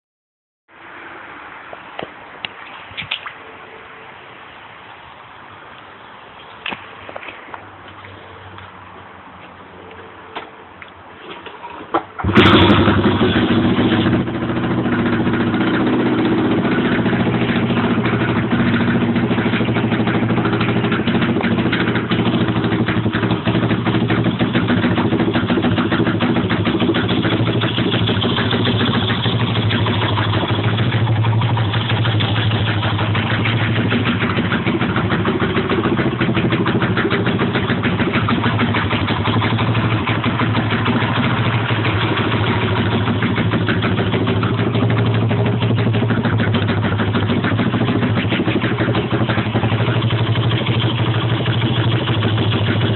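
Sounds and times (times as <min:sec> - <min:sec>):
motorbike engine starting and idling: 0:11.2 - 0:52.9.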